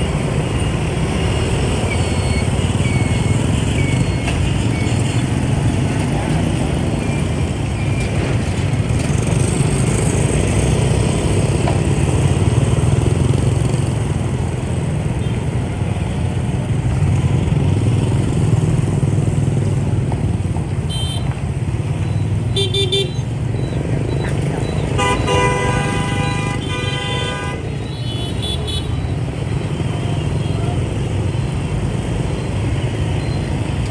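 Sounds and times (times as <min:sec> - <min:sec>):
road rumble: 0:00.0 - 0:33.9.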